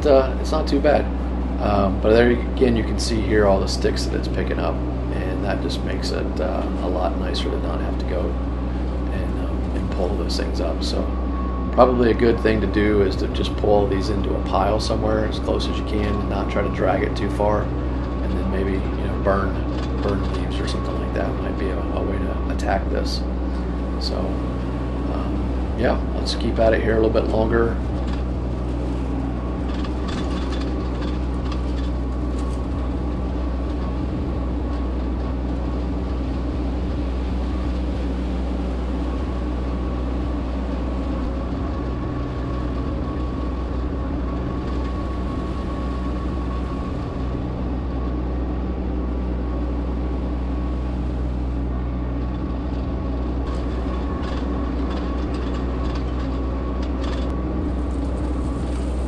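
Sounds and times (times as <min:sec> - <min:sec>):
diesel tractor running: 0:00.0 - 0:59.0
clicks and rattles: 0:18.0 - 0:21.6, 0:27.2 - 0:28.9, 0:29.6 - 0:37.0, 0:52.2 - 0:59.0.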